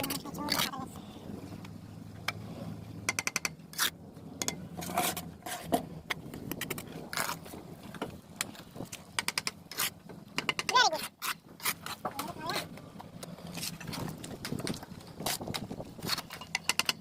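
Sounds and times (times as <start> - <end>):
steel trowel scraping bricks: 3.7 - 4.0, 4.8 - 5.8, 9.7 - 10.0, 10.7 - 12.6.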